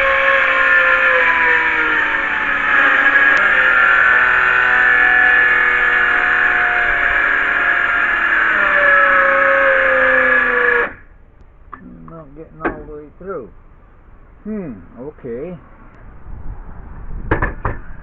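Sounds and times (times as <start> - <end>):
power saw cutting wood: 0.0 - 11.1.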